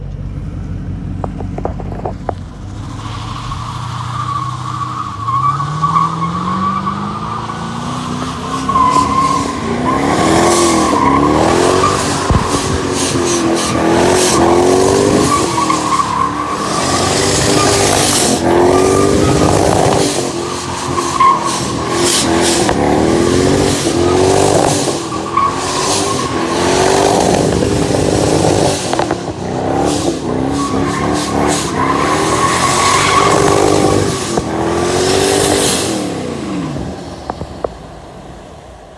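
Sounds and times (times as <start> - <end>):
car engine revving: 0.0 - 38.4
tyre squeal: 2.6 - 22.8, 30.0 - 34.5.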